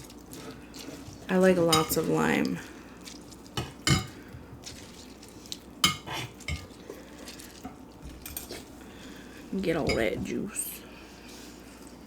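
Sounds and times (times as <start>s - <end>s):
dishes and utensils clinking: 1.6s - 2.2s, 3.6s - 4.2s, 5.8s - 6.7s.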